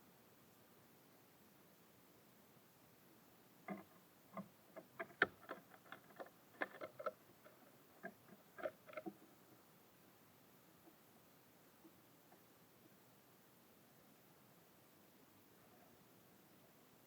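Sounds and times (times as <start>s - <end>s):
birds pecking at seed: 3.7s - 9.6s.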